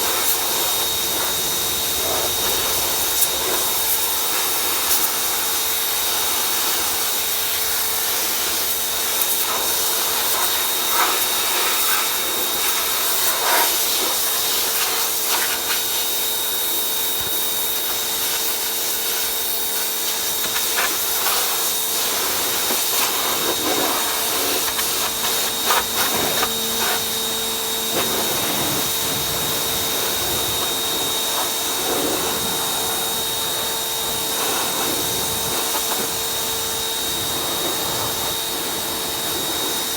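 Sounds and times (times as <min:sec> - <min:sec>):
pressure washer motor hum: 0:00.0 - 0:39.9
water spray hissing: 0:16.8 - 0:27.2.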